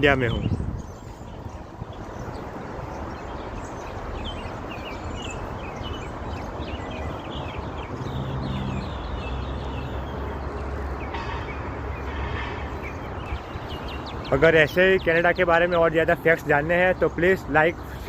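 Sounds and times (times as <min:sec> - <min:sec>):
birds chirping: 0:00.0 - 0:18.0
low hum: 0:07.8 - 0:10.8
steady low rumble: 0:07.8 - 0:10.8.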